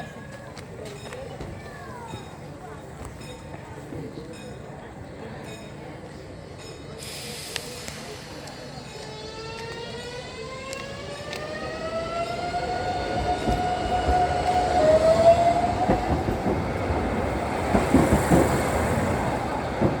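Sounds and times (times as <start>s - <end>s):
train wheels rolling on rails: 6.5s - 20.0s.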